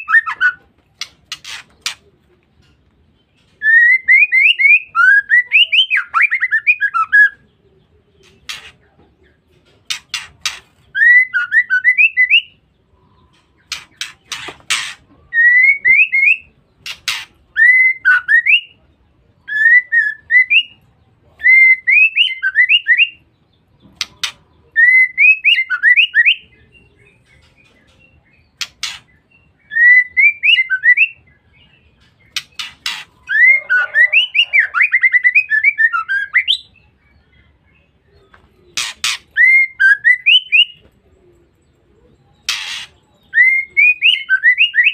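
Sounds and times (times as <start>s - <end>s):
sharp bird clicks: 13.3s - 15.1s, 23.8s - 24.4s, 28.6s - 29.2s, 32.0s - 33.3s.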